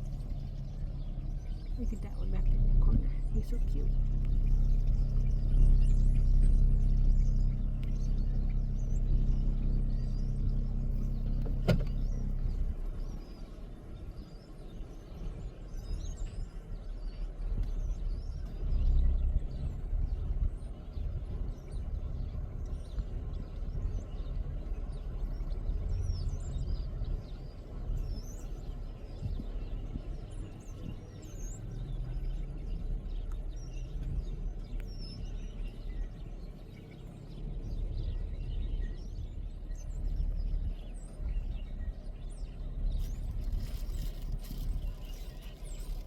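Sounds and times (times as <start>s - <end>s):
small birds chirping: 0.0s - 46.0s
steady low rumble: 0.0s - 46.0s
rustling noise: 43.0s - 46.0s.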